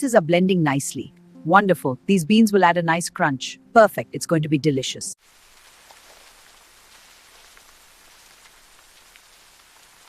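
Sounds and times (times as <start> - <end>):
rain hissing: 5.2 - 10.0
light raindrop ticks: 5.4 - 10.0.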